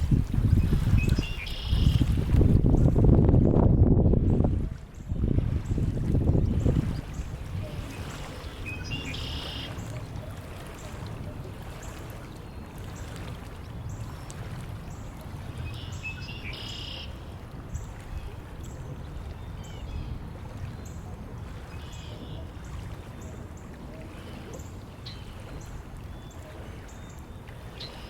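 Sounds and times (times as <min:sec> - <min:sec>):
wind noise: 0:00.0 - 0:08.4
birds singing: 0:00.6 - 0:02.1, 0:06.4 - 0:11.0, 0:15.7 - 0:17.2.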